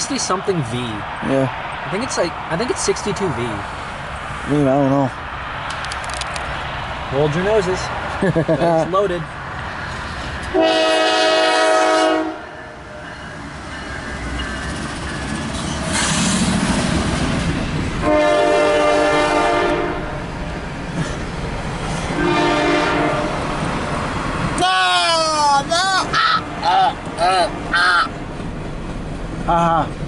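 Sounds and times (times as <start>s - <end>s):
train running noise: 0.0s - 30.0s
train air horn blasts: 10.5s - 12.8s, 18.0s - 20.2s, 22.1s - 23.5s.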